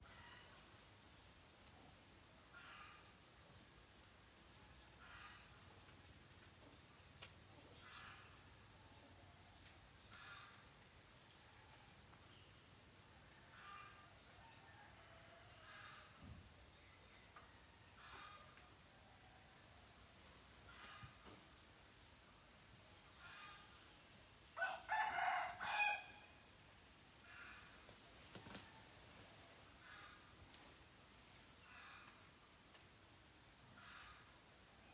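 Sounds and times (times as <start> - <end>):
high insect drone: 15.5 - 34.9
insects chirping in pulses: 15.5 - 34.9
rooster crowing: 24.6 - 26.4.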